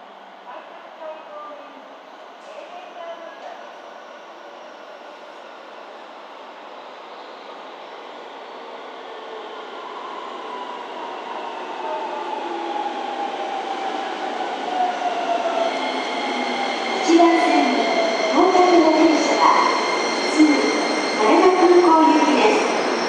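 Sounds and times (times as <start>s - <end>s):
train brake squeals: 15.8s - 23.0s.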